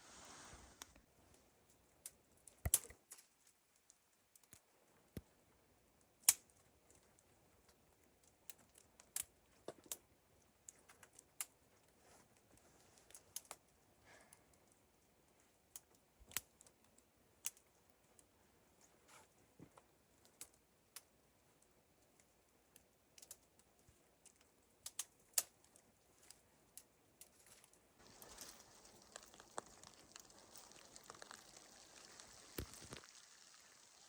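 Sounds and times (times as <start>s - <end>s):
faint hiss: 0.0s - 1.1s, 28.0s - 34.0s
sharp little clicks and snaps: 2.0s - 5.3s, 6.2s - 10.0s, 13.1s - 13.6s, 15.7s - 17.6s, 22.7s - 27.7s.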